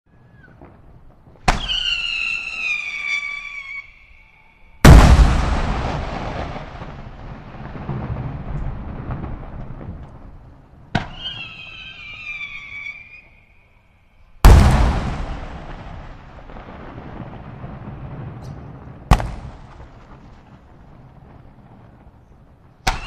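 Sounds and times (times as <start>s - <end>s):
fireworks bursting with bangs: 0.1s - 13.4s, 14.4s - 23.0s
wavering falling whistle: 1.6s - 4.8s, 11.1s - 14.2s.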